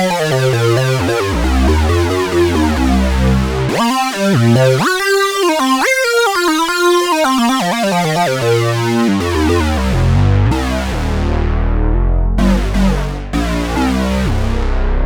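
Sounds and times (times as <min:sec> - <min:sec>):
synthesizer notes and chords: 0:00.0 - 0:15.0.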